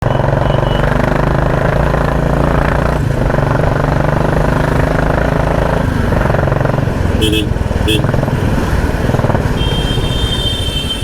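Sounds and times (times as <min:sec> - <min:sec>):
motorcycle engine thumping: 0:02.9 - 0:09.6.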